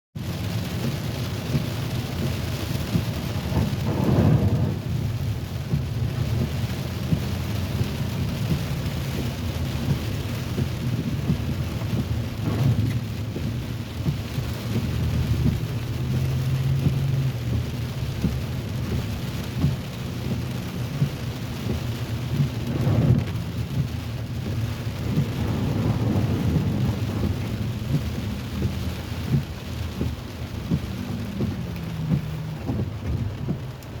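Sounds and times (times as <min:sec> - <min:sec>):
rain falling: 0:00.2 - 0:34.0
sharp taps of raindrops: 0:00.2 - 0:34.0
low rumble: 0:01.5 - 0:34.0.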